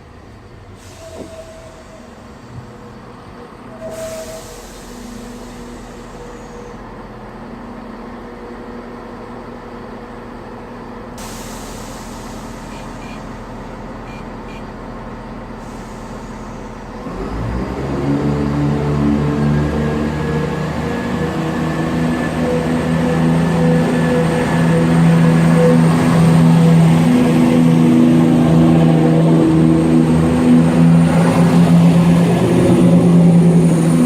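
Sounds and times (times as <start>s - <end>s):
diesel train engines idling: 0.0s - 34.0s
train engines revving: 0.0s - 34.0s
air hiss: 11.2s - 13.1s.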